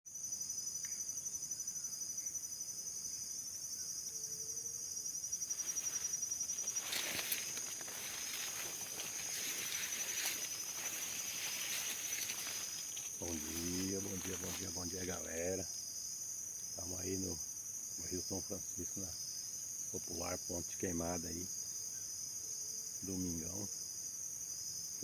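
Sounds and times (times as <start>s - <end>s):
insects trilling: 0.1s - 25.0s
rustling noise: 5.5s - 15.2s.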